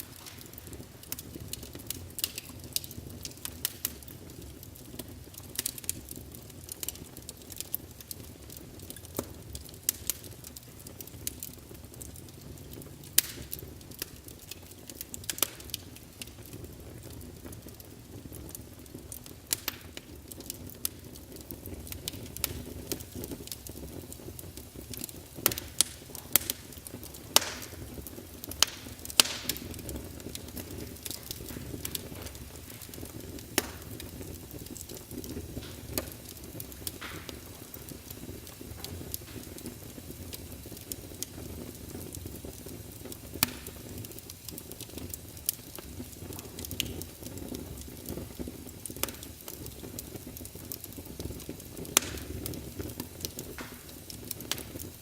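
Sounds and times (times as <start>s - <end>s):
fire flames rumbling: 0.0s - 55.0s
logs crackling and popping: 0.0s - 55.0s.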